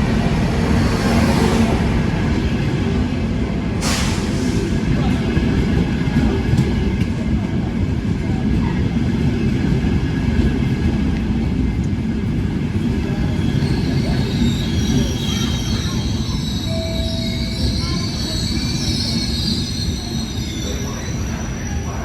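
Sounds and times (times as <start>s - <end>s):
train wheels rumbling on rails: 0.0s - 22.0s
high-pitched wheel squeal: 13.4s - 22.0s.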